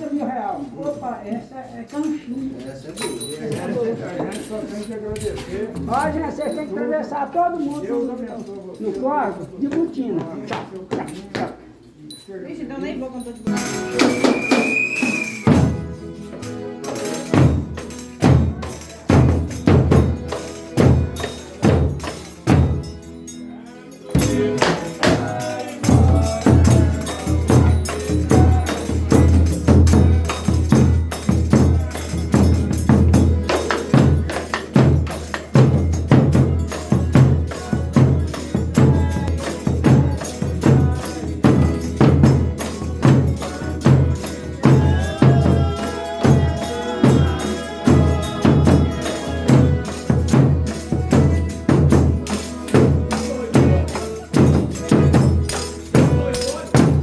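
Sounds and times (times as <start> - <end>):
tambourine jingling: 0.0 - 57.0
held melody notes: 12.8 - 57.0.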